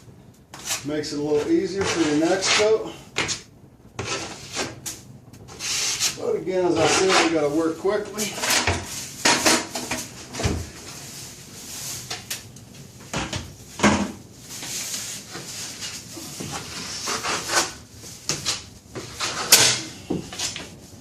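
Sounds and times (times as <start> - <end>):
taping knife scraping compound: 0.5 - 3.4, 4.0 - 4.8, 5.5 - 7.5, 15.8 - 20.6.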